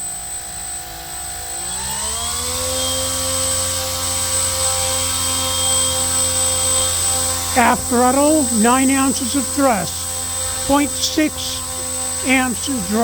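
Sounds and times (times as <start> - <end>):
electric motor spinning propeller: 0.0 - 13.0
thin high whine: 2.8 - 13.0.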